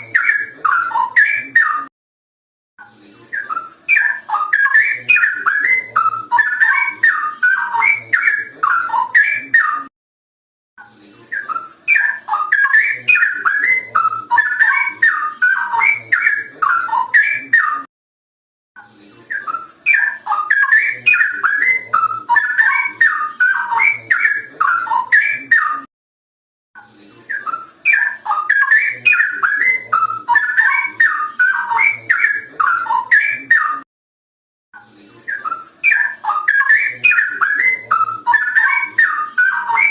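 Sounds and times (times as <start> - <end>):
bird singing whistled phrases: 3.4 - 9.9, 11.4 - 17.9, 19.3 - 25.9, 27.3 - 33.8, 35.3 - 39.9.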